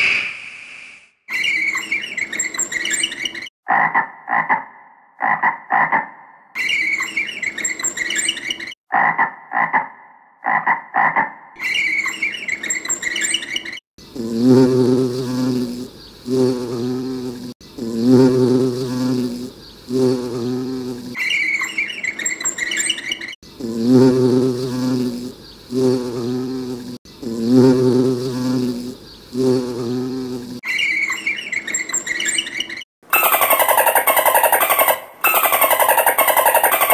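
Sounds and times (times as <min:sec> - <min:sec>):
bee buzzing: 0:14.0 - 0:21.2, 0:23.4 - 0:30.6
chorus of high frog calls: 0:33.1 - 0:36.9.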